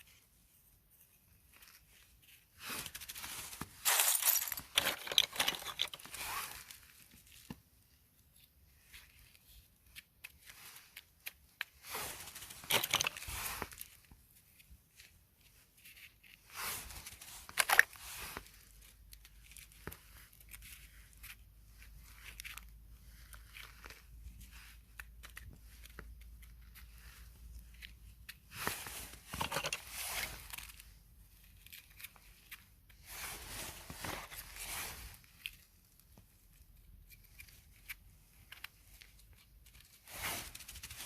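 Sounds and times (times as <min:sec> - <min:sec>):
rustling tearing noise: 0:15.8 - 0:41.0.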